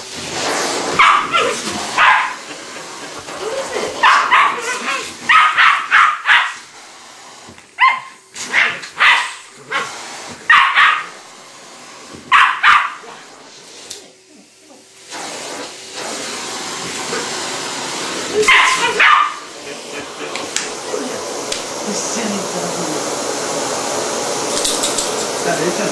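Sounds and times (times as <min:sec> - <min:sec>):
vacuum cleaner running: 0:00.0 - 0:25.9
dog barking: 0:01.0 - 0:02.4, 0:04.0 - 0:06.6, 0:07.8 - 0:09.9, 0:10.5 - 0:11.2, 0:12.3 - 0:13.1, 0:18.4 - 0:19.5.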